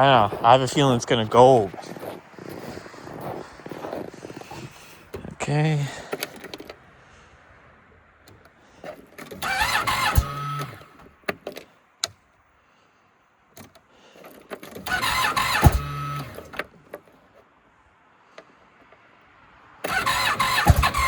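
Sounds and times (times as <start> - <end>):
snowmobile engine cranking: 0.0 - 6.8, 8.3 - 12.2, 13.6 - 17.4, 19.8 - 21.0.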